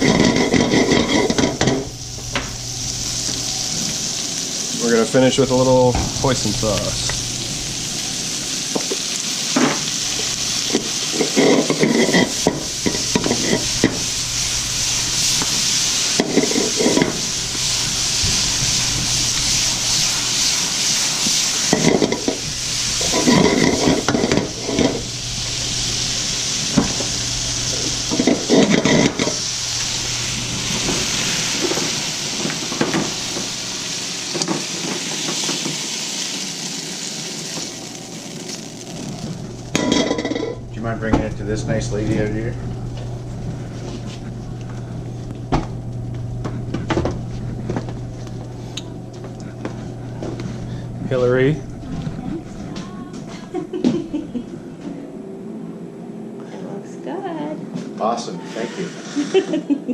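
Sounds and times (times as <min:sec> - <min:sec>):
utensil scraping and clattering pan: 0:00.0 - 0:01.9, 0:10.6 - 0:14.1, 0:15.3 - 0:17.3, 0:21.6 - 0:25.1, 0:27.8 - 0:29.4, 0:39.7 - 0:40.6
stir fry sizzling in pan: 0:00.0 - 0:40.7.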